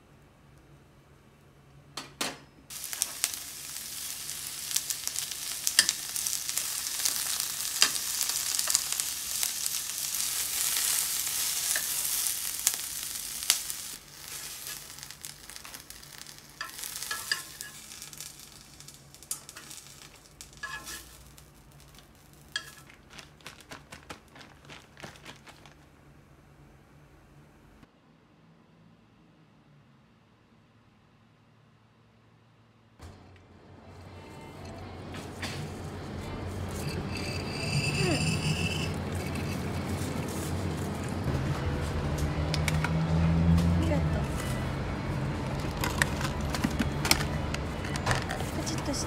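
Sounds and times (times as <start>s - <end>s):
peppers sizzling in a frying pan: 2.7s - 25.8s, 35.3s - 49.0s.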